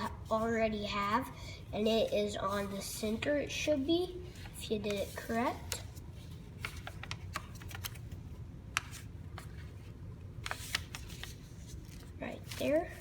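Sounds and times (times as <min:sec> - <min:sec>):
paper folding and creasing: 0:04.4 - 0:13.0.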